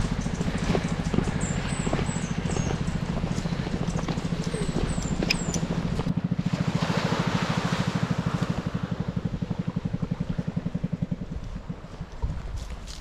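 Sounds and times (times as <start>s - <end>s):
small engine puttering: 0.0s - 13.0s.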